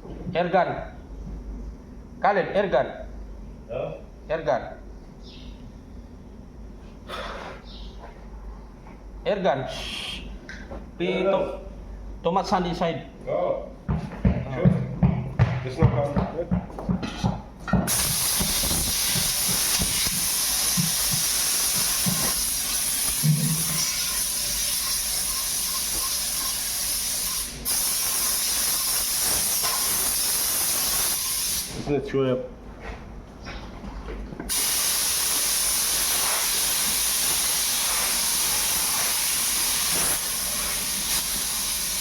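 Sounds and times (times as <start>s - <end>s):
air blow gun hissing: 17.9s - 31.9s, 34.5s - 42.0s.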